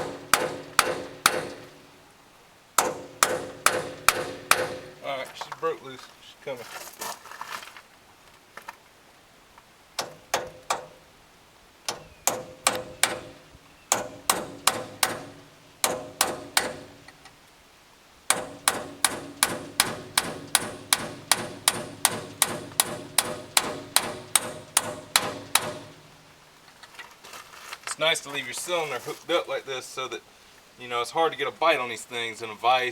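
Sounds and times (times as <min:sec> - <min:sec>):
hammer striking metal nut: 0:00.0 - 0:01.8, 0:02.8 - 0:05.0, 0:10.0 - 0:11.0, 0:11.9 - 0:17.2, 0:18.3 - 0:26.1.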